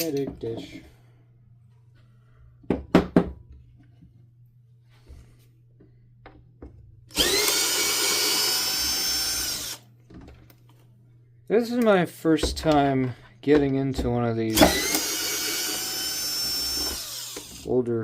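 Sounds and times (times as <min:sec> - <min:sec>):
power drill whining: 0:07.1 - 0:09.8, 0:14.5 - 0:17.7.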